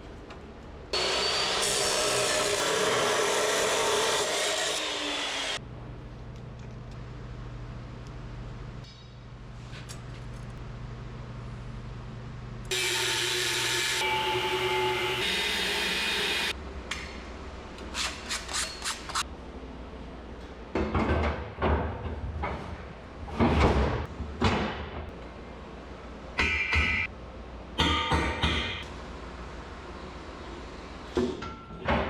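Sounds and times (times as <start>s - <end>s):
loud power tool running: 1.0s - 5.6s, 12.7s - 16.6s.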